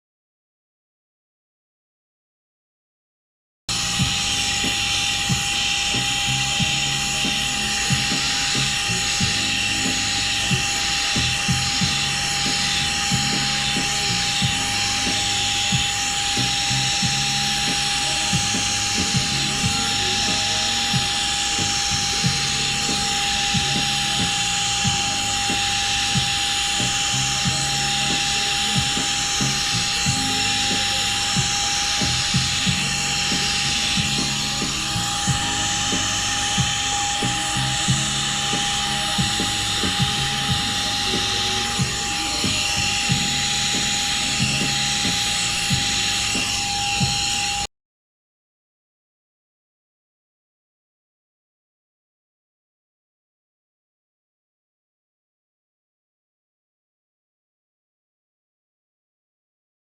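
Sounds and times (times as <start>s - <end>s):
handheld vacuum whining: 3.7s - 47.7s.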